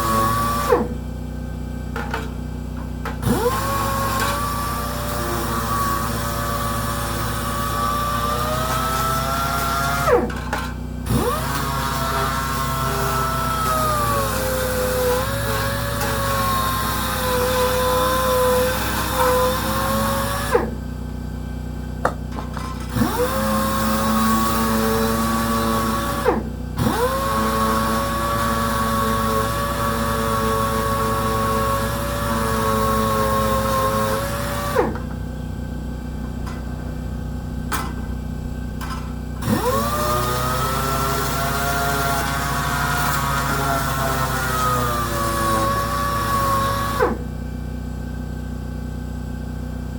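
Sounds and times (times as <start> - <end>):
power sander whining: 0.0 - 1.0, 3.2 - 20.8, 22.3 - 35.2, 38.8 - 47.3
steady low hum: 34.9 - 39.4.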